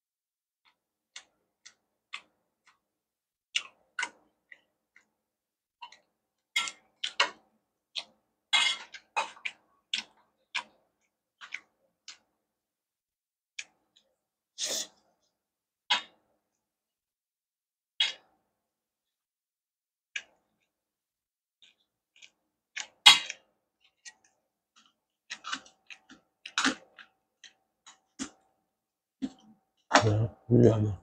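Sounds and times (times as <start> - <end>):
wet chewing clicks: 21.6 - 28.4.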